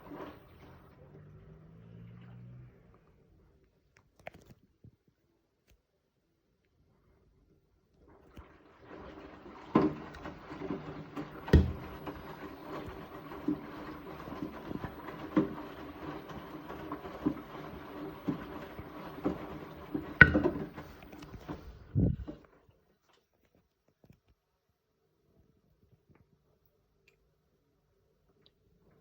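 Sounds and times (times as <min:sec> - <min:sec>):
washing machine motor humming: 0:00.0 - 0:02.2, 0:08.1 - 0:22.5
washing machine drum thudding: 0:09.4 - 0:22.4.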